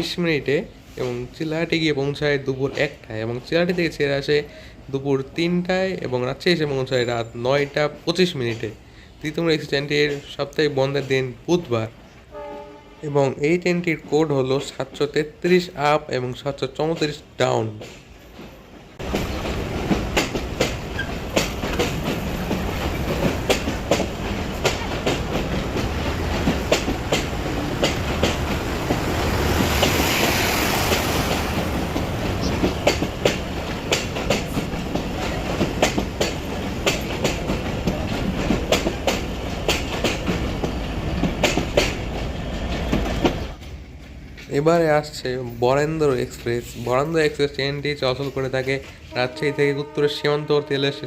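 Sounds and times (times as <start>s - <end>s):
train wheels clacking over joints: 16.7s - 44.8s
train hissing: 17.9s - 43.2s.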